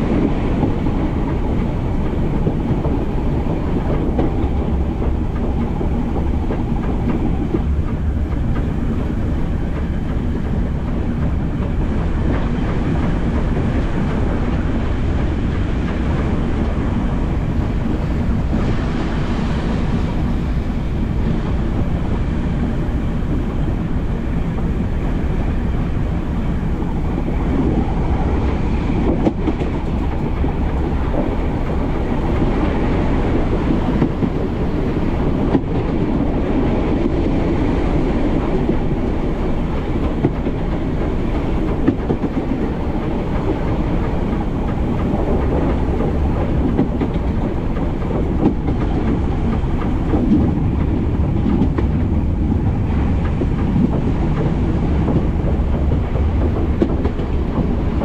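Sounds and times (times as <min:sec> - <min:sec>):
train wheels rumbling on rail: 0:00.0 - 0:58.0
sharp clicks of track: 0:40.0 - 0:52.2, 0:53.2 - 0:58.0.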